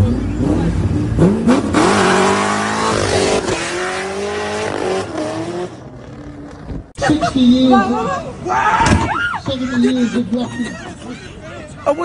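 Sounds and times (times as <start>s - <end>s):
car engine revving hard: 0.4s - 5.8s.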